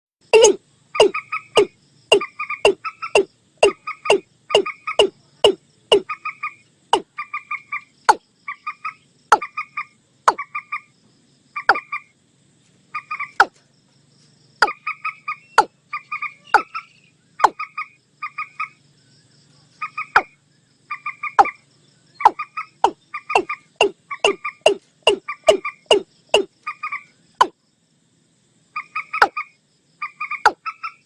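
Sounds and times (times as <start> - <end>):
bird clucking notes: 0.3 - 10.8, 11.6 - 12.0, 13.0 - 13.6, 14.6 - 18.8, 19.8 - 20.3, 20.9 - 21.6, 22.2 - 27.6, 28.8 - 31.0
sharp bird calls dropping in pitch: 0.3 - 10.9, 11.6 - 12.1, 14.6 - 18.8, 19.9 - 21.6, 22.2 - 27.6, 28.8 - 31.0.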